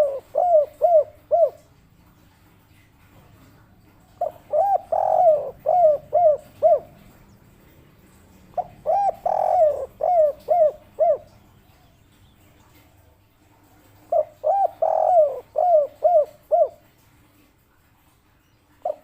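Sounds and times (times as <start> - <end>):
dove cooing: 0.0 - 1.8, 3.2 - 12.0, 13.7 - 17.0, 18.8 - 19.0.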